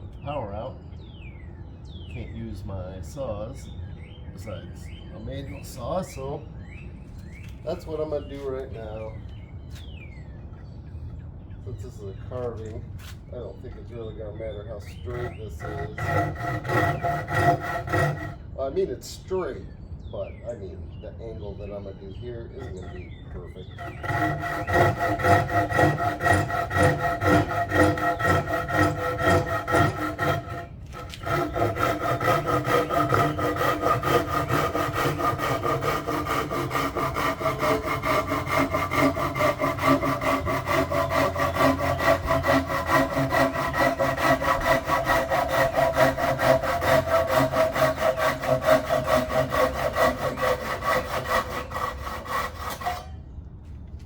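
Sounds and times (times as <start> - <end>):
hand saw cutting wood: 14.8 - 18.4, 22.6 - 53.2.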